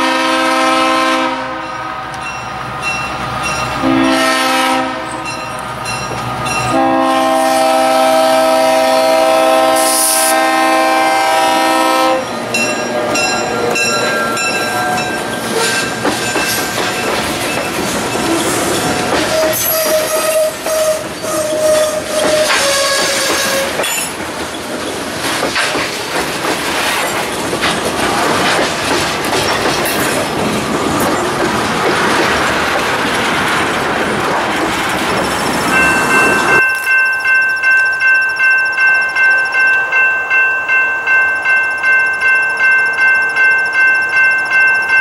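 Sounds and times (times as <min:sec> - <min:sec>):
crossing bell ringing: 0:00.0 - 0:24.2, 0:35.3 - 0:45.0
wheels clicking over rail joints: 0:12.5 - 0:38.1
wheel squeal: 0:13.8 - 0:24.2
freight cars rolling past: 0:23.1 - 0:36.6.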